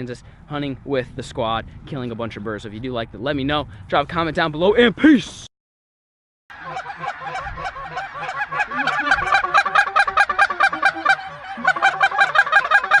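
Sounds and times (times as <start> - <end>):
geese honking: 6.5 - 13.0.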